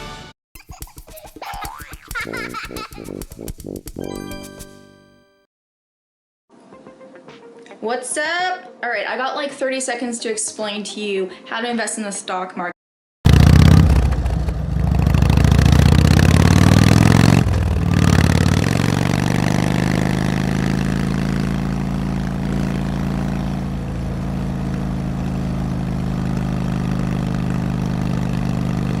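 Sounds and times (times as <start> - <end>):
motorcycle engine revving and idling: 13.3 - 29.0.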